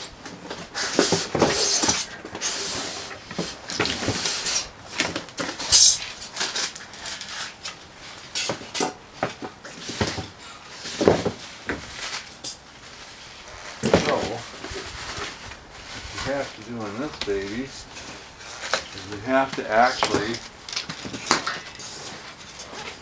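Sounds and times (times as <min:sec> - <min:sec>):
rustle: 0:00.1 - 0:23.0
knocks and clunks of handled parts: 0:17.0 - 0:23.0.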